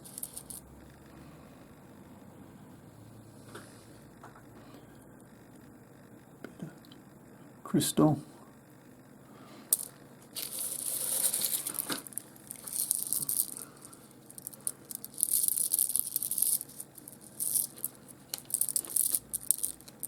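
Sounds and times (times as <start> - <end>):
stones clicking and rattling: 0.0 - 0.6, 9.7 - 20.0.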